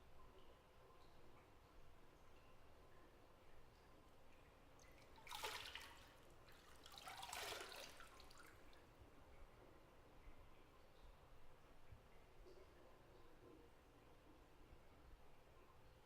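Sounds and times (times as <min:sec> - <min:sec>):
bathwater splashing in a tub: 0:04.8 - 0:08.8.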